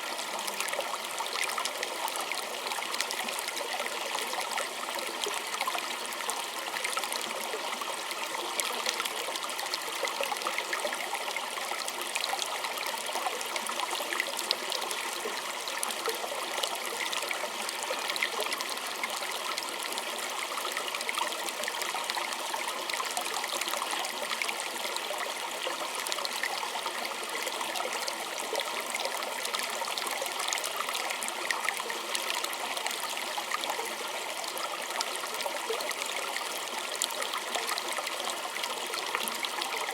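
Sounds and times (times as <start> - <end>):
creek trickling over stones: 0.0 - 39.9.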